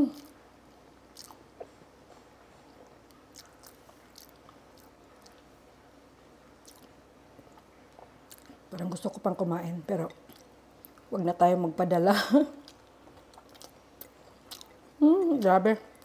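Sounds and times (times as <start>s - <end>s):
person chewing food: 0.0s - 5.7s, 6.5s - 8.9s, 12.6s - 16.0s
mouth clicks and smacks: 1.1s - 1.9s.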